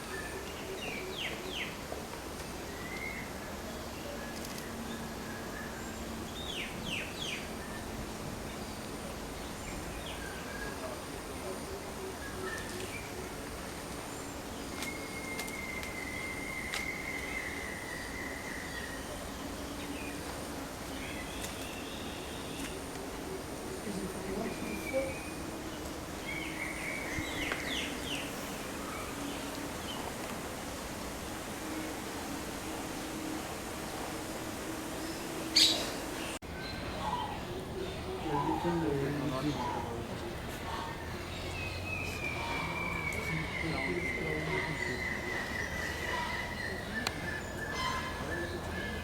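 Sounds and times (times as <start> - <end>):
steady background noise: 0.0 - 49.0
birds calling: 34.4 - 49.0
bird whistling calls: 35.6 - 36.0.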